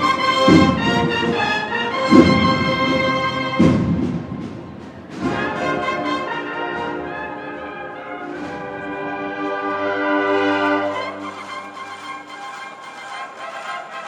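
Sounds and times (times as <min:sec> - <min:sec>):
brass band playing chords: 0:00.0 - 0:14.0
drum hit: 0:02.1 - 0:05.6.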